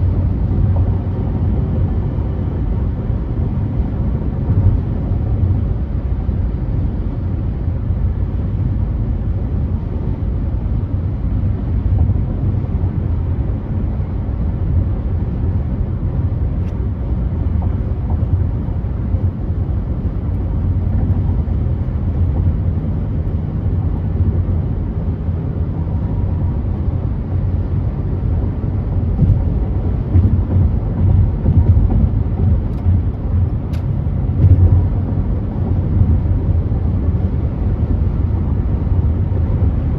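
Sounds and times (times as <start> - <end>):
car driving rumble: 0.0 - 39.9
road and tyre noise: 0.0 - 39.9.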